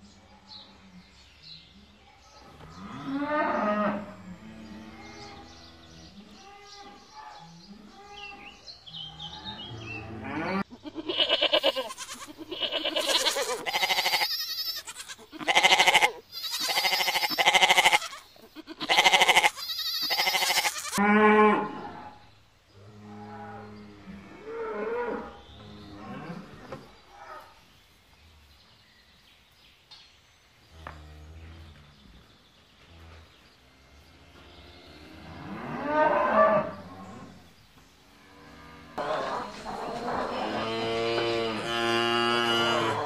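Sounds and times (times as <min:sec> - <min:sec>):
goat bleating: 0:10.6 - 0:21.0.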